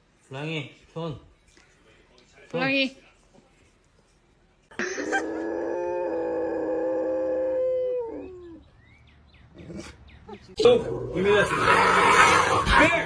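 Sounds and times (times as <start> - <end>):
dog howling: 5.1 - 8.6, 10.6 - 13.0.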